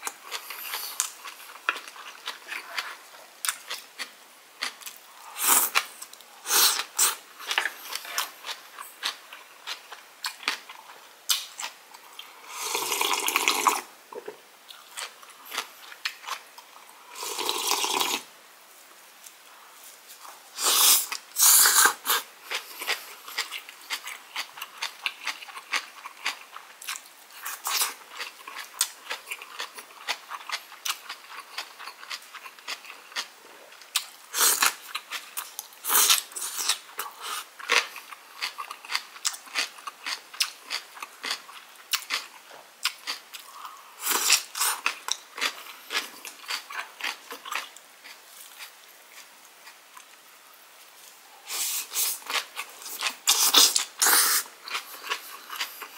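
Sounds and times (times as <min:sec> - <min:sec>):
wet chewing and crunching: 0:22.1 - 0:50.2.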